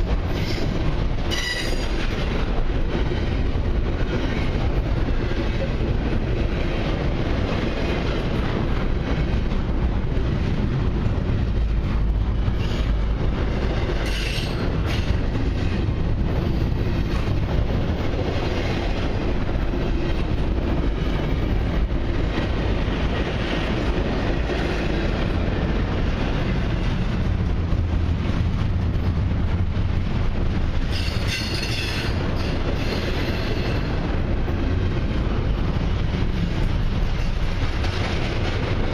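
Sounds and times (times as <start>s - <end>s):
freight train wheels rumbling on rails: 0.0s - 38.9s
high wheel squeal: 1.3s - 1.9s.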